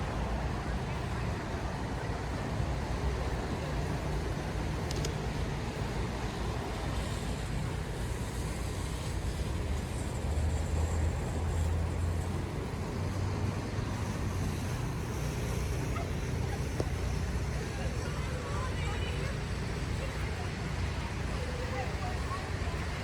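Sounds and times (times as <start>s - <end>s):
road traffic noise: 0.0s - 23.0s
vehicle engine rumble passing: 0.0s - 23.0s.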